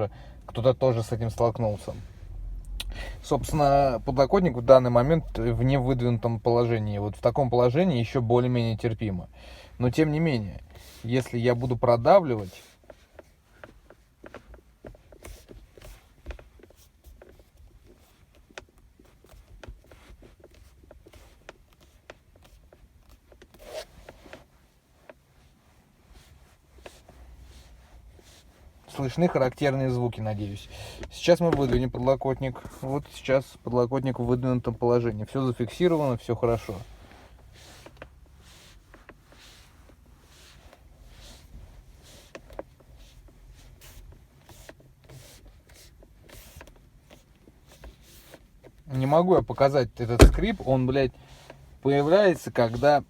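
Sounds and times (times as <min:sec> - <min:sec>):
plastic armrest creaking: 0:12.4 - 0:25.2, 0:29.1 - 0:32.8, 0:43.9 - 0:53.0
armrest clicking: 0:31.0 - 0:32.1, 0:50.1 - 0:50.8.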